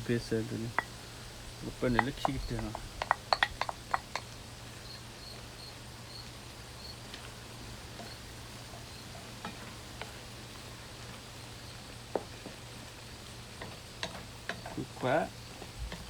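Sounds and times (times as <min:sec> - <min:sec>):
food sizzling in a pan: 0:00.0 - 0:16.0
light utensil clicks: 0:00.6 - 0:04.4, 0:13.5 - 0:14.9, 0:15.6 - 0:16.0.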